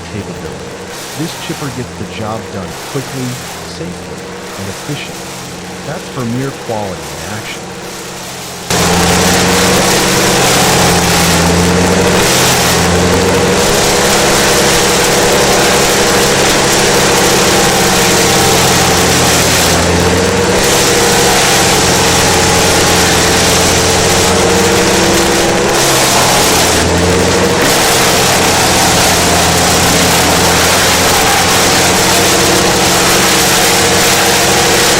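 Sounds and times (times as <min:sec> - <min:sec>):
wood chipper running: 0:00.0 - 0:34.9.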